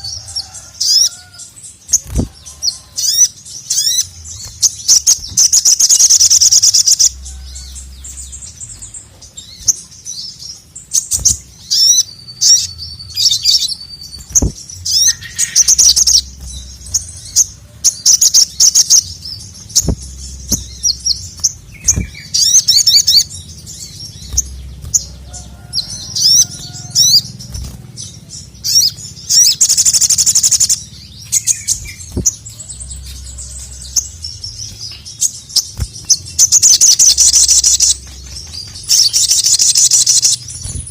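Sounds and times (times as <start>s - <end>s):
bird trilling chatter: 10.9s - 40.9s.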